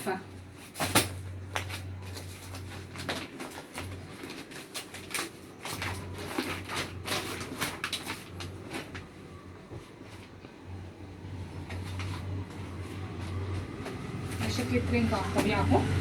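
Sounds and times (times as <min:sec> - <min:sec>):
plastic packaging crinkling: 0:00.6 - 0:09.3.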